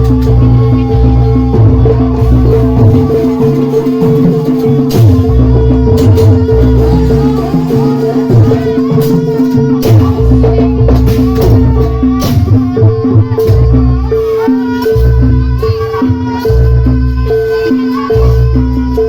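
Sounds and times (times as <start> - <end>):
low drum pulses: 0.0 - 14.3
rattling percussion: 0.0 - 19.0
wavering melody line: 0.0 - 19.0.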